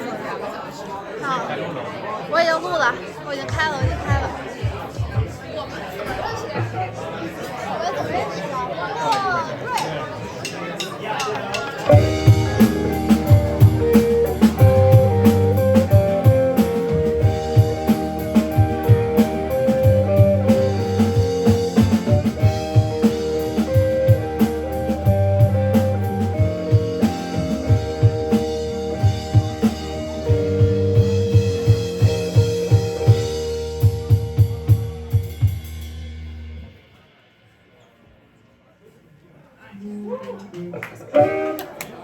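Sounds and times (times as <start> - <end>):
steady drum beat: 3.5 - 5.6, 10.4 - 37.0
rock band playing instrumental: 11.5 - 36.8, 40.6 - 42.0
guitar melody: 11.9 - 35.5, 39.8 - 42.0.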